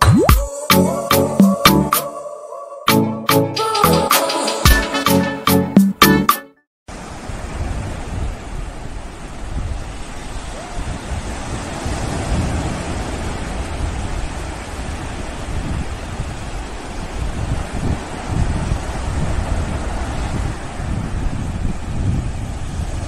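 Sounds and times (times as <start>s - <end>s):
sea surf washing onto beach: 6.9s - 23.0s
wind rumbling on microphone: 6.9s - 23.0s.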